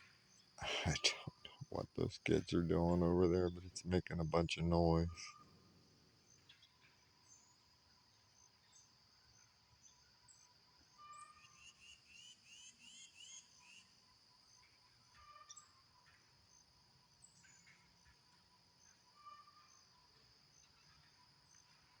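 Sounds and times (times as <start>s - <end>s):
songbird singing: 0.0s - 5.6s
insects droning: 0.0s - 22.0s.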